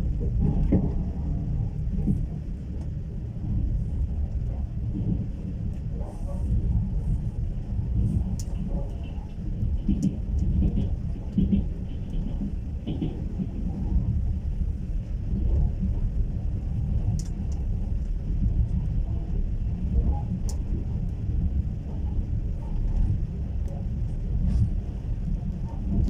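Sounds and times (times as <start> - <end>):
train carriage rumbling: 0.0 - 26.0
faint clicks: 17.0 - 18.1.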